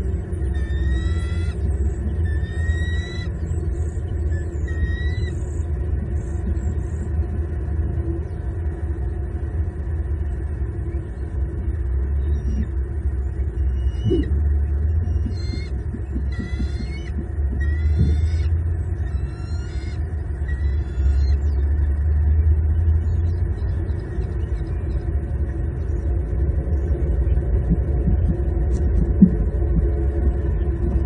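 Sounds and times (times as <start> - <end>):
steady low rumble: 0.0 - 31.0
eagle whistled calls: 0.5 - 5.6, 13.6 - 21.6.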